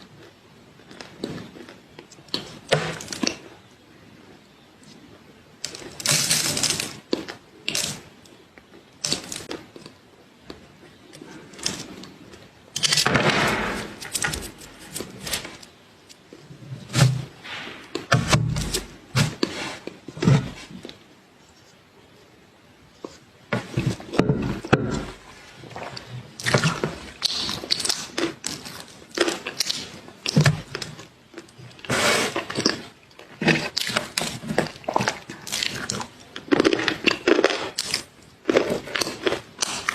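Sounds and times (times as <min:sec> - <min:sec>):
crunchy bites and chewing: 0:23.7 - 0:39.9.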